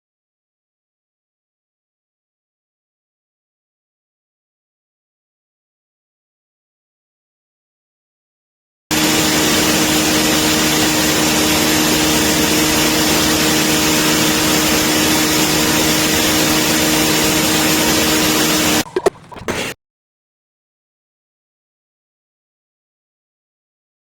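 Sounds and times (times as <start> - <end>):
blender running: 8.9 - 18.9.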